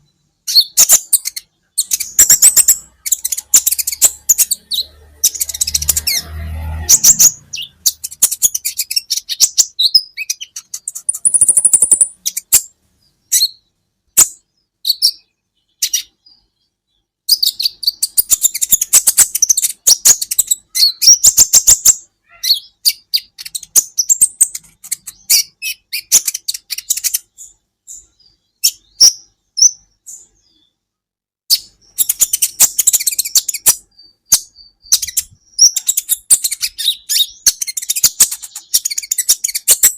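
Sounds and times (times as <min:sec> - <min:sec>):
bird chirping and trilling: 0:00.0 - 0:30.8, 0:31.5 - 0:39.9.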